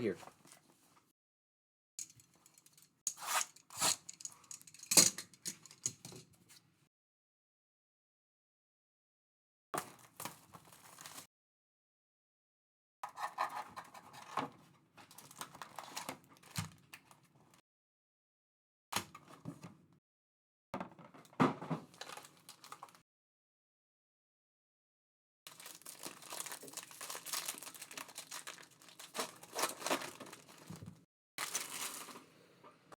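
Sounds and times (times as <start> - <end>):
cards and packaging rustling: 25.5 - 32.3.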